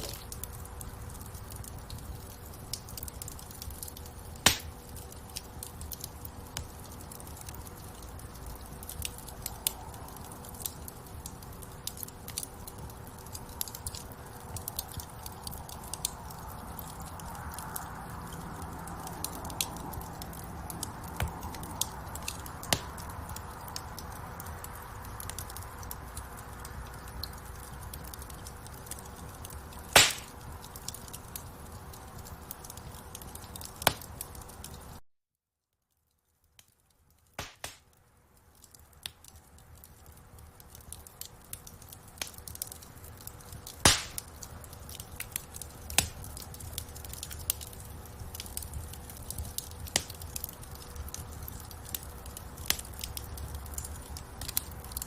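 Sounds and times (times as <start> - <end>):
rumble of flames: 0.0 - 35.0, 36.3 - 55.0
wood fire crackling: 0.0 - 35.0, 35.8 - 55.0.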